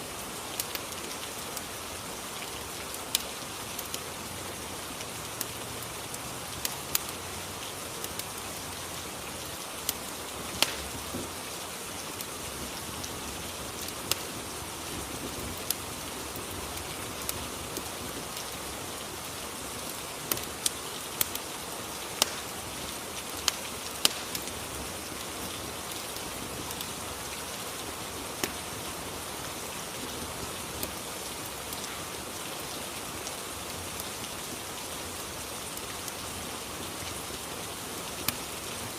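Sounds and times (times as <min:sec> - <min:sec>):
steady rain: 0:00.0 - 0:38.9
crackling fire pops: 0:00.4 - 0:01.7, 0:02.4 - 0:04.1, 0:06.6 - 0:08.4, 0:09.5 - 0:26.9, 0:27.7 - 0:29.0, 0:29.9 - 0:32.7, 0:38.2 - 0:38.6.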